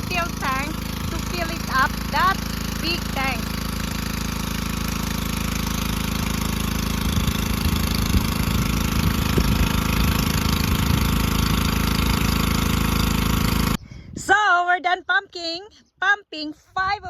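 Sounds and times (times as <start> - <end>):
water pump engine running: 0.0 - 13.8
water filling steel tank: 0.4 - 13.8.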